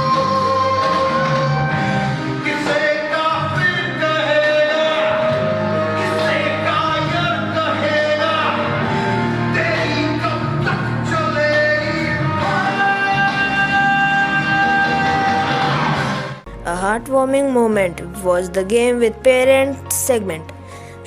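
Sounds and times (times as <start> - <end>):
music with singing: 0.0 - 21.0.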